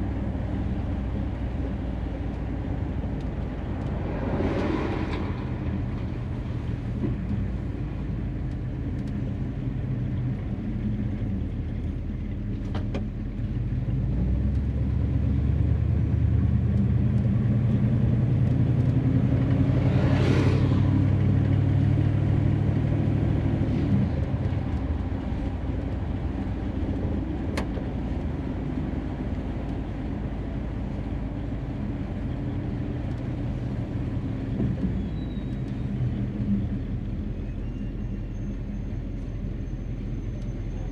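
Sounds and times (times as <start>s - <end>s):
brief whoosh: 3.7s - 7.2s.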